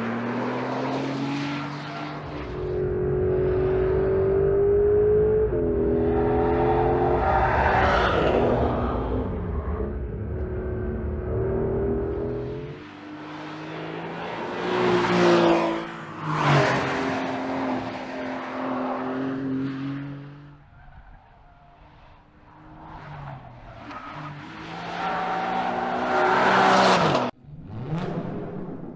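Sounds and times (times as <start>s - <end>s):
car engine exhaust revving: 2.2s - 16.0s.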